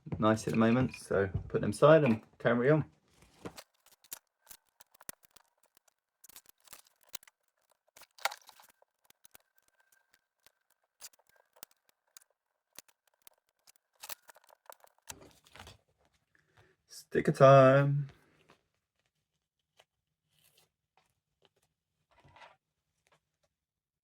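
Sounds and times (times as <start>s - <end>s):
plastic bricks clicking together: 3.5s - 15.2s.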